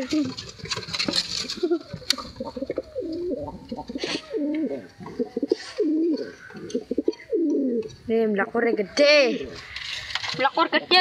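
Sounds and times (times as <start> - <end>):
pigeons cooing: 0.0 - 10.2.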